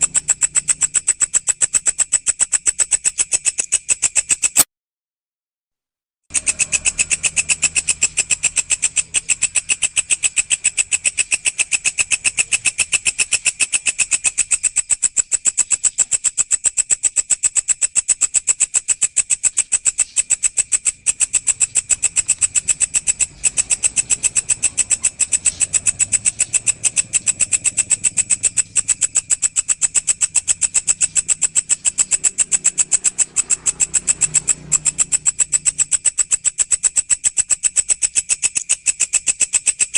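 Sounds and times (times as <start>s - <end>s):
insect high-pitched pulsed buzz: 0.0s - 4.6s, 6.3s - 39.9s.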